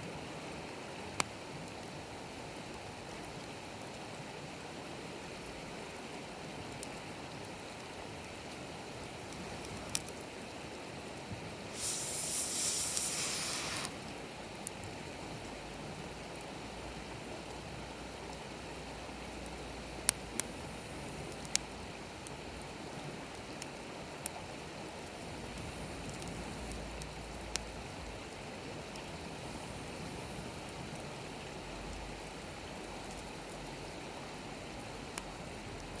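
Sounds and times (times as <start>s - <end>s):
campfire hissing: 8.6s - 15.5s, 19.6s - 23.2s, 24.2s - 31.6s
fire popping and crackling: 11.7s - 14.2s.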